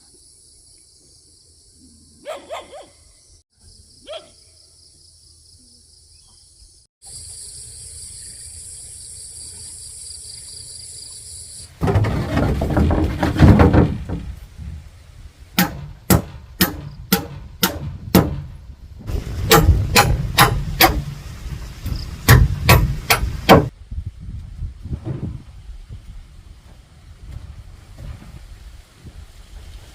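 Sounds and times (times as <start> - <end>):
loud clattering rustling: 11.8 - 14.8
hammer striking nails: 15.6 - 18.5, 19.5 - 21.2, 22.3 - 23.7.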